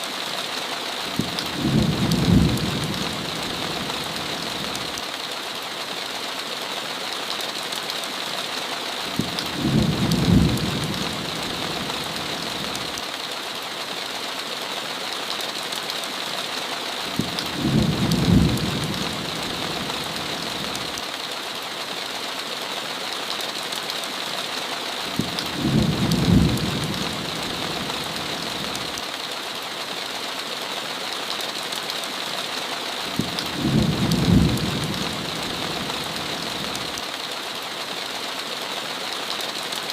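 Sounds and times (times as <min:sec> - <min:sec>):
heavy rain: 0:00.0 - 0:39.9
low rumble of thunder: 0:01.2 - 0:04.7, 0:09.2 - 0:12.8, 0:17.2 - 0:20.7, 0:25.2 - 0:28.7, 0:33.2 - 0:36.7.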